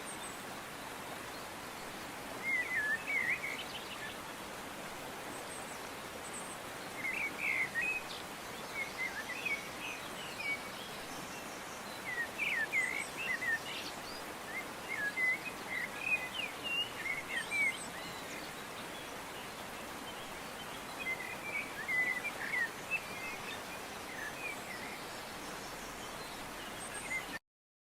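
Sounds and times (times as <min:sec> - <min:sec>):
steady outdoor hiss: 0:00.0 - 0:27.4
small birds chirping: 0:05.2 - 0:27.4.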